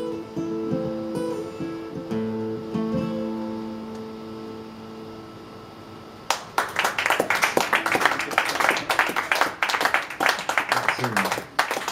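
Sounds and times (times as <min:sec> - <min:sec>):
guitar chord ringing: 0:00.0 - 0:06.2
audience applause: 0:06.3 - 0:11.9.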